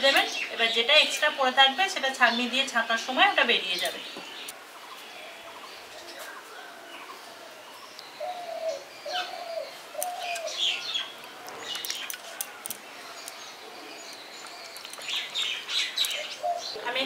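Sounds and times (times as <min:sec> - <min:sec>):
small birds chirping: 0:00.0 - 0:17.0
dove cooing: 0:05.1 - 0:11.6, 0:16.1 - 0:16.9.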